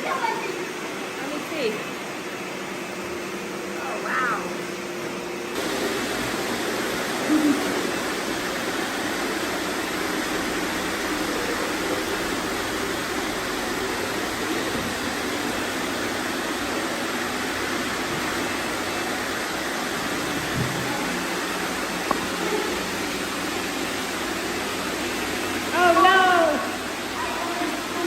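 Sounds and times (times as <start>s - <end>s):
robot vacuums running: 5.6s - 28.0s.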